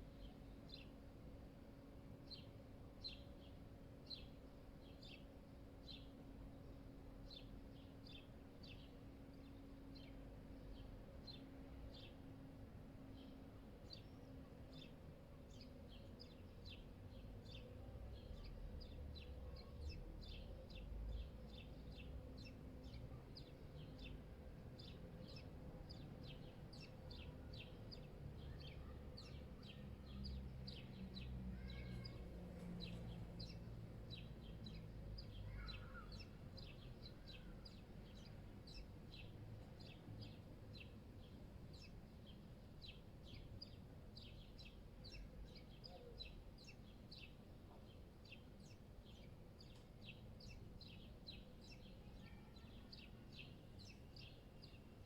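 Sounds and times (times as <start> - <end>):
small birds chirping: 0.0 - 1.4, 2.3 - 12.2, 13.0 - 55.0
faint low city rumble: 0.0 - 55.0.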